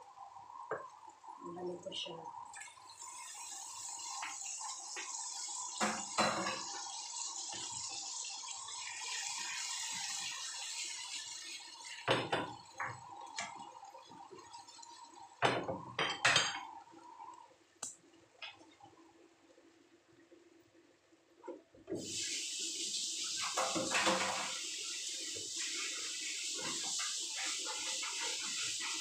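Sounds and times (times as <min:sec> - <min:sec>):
food sizzling in hot oil: 0:02.0 - 0:17.3, 0:21.9 - 0:29.0.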